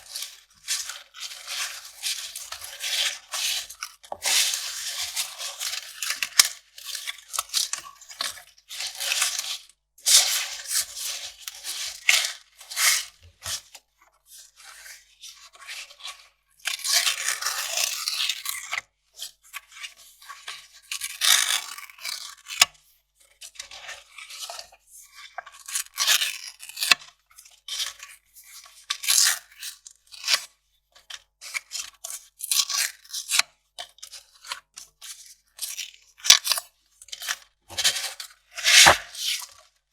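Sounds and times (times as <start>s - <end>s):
paper tearing and crinkling: 37.7s - 39.4s.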